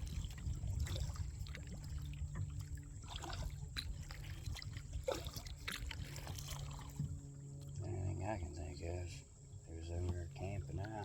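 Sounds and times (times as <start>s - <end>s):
paddle splashing in water: 0.0s - 7.8s
water trickling off paddle: 0.0s - 7.9s, 9.5s - 11.0s.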